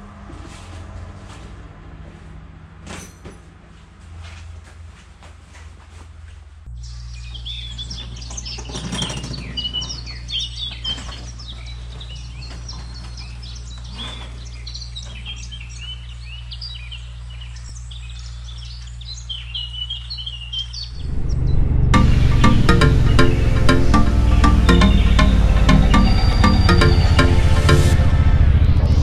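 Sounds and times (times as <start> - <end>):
steady low hum: 4.0 - 29.0
birds chirping and calling: 6.8 - 27.0.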